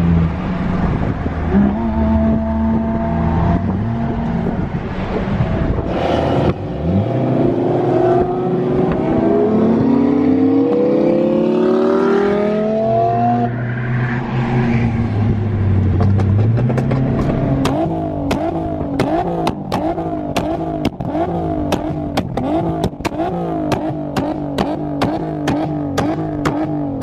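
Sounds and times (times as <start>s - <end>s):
supercar engine revving: 0.0s - 13.6s, 14.9s - 27.0s.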